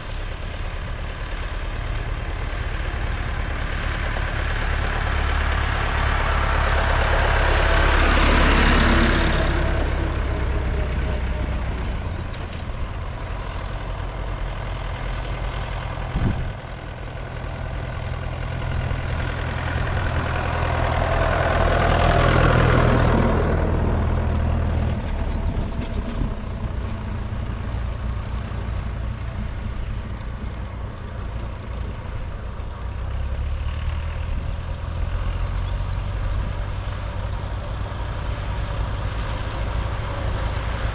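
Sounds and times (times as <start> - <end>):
tractors driving past: 0.0 - 40.9.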